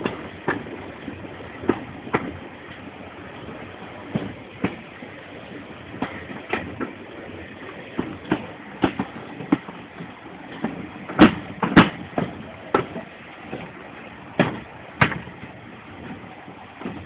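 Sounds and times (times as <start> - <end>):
train running rumble: 0.0 - 17.0
wheels clacking over rail joints: 0.0 - 17.0.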